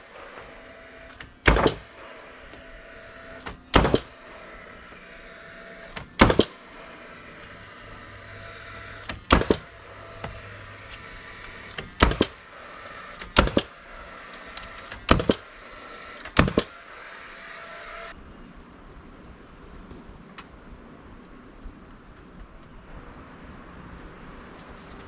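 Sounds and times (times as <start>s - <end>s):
steady low hum: 0.0s - 25.0s
loud sharp knocks: 1.4s - 1.9s, 3.7s - 4.1s, 9.0s - 10.4s, 12.0s - 12.4s.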